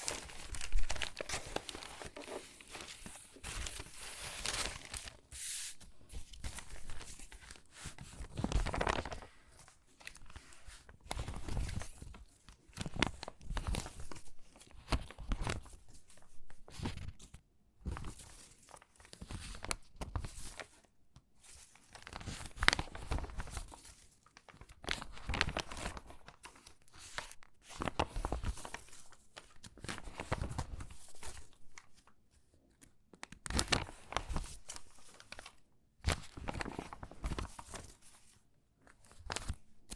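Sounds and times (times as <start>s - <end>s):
magazine pages crinkling: 0.0s - 11.8s, 33.4s - 38.4s, 39.0s - 39.6s.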